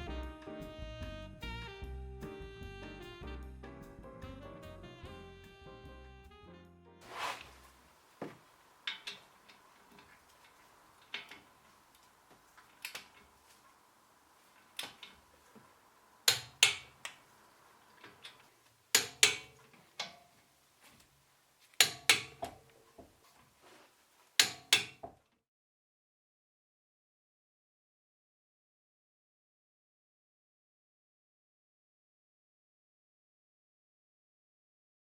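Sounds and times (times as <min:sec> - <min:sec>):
faint steady hum: 0:07.4 - 0:24.4.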